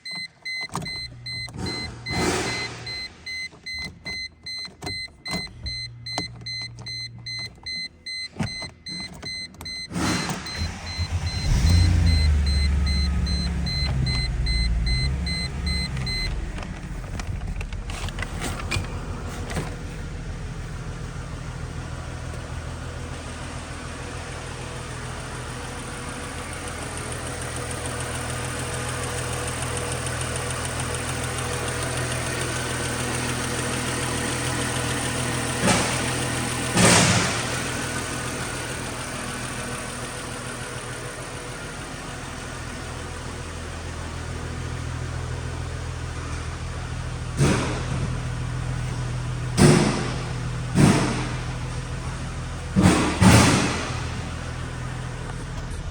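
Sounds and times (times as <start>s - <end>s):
dashboard warning chime: 0.0s - 16.6s
car engine idling: 0.0s - 55.9s
car engine starting and revving: 0.0s - 55.9s.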